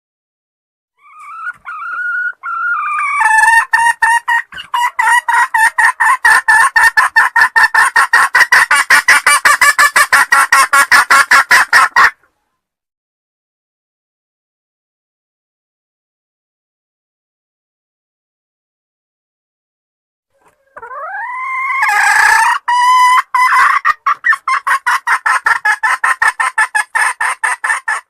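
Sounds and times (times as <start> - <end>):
junglefowl clucking call: 1.0 - 12.2, 20.3 - 28.0.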